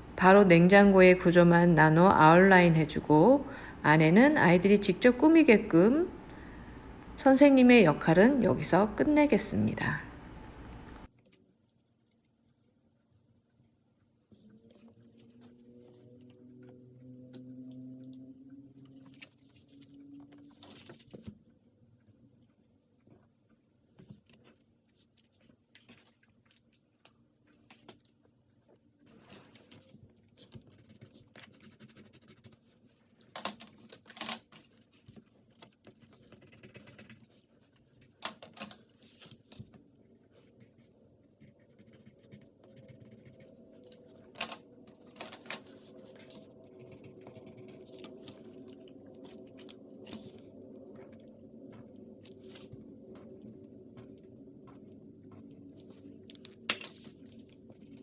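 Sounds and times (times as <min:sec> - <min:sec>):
low steady hum: 0:00.0 - 0:11.2, 0:38.8 - 0:58.0
pen scratching on paper: 0:30.5 - 0:32.7, 0:35.8 - 0:37.5, 0:39.1 - 0:44.2, 0:45.6 - 0:48.5, 0:51.7 - 0:58.0.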